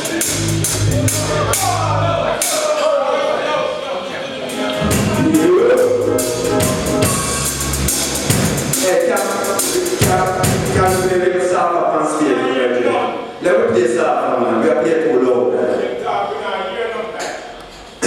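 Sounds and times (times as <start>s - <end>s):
live band playing: 0.0s - 2.5s, 4.4s - 11.2s
drum kit: 0.0s - 2.7s, 4.5s - 11.2s
person singing: 4.6s - 7.6s.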